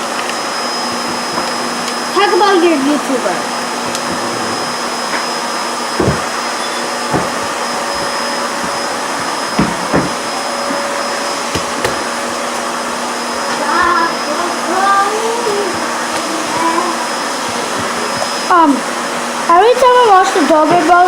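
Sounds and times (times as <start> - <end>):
whooshing motor noise: 0.0 - 21.0
child's voice: 13.5 - 17.1.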